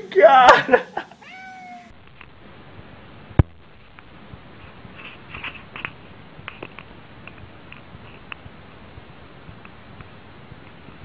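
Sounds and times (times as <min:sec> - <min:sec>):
faint taps and soft clicks: 0:05.0 - 0:10.8.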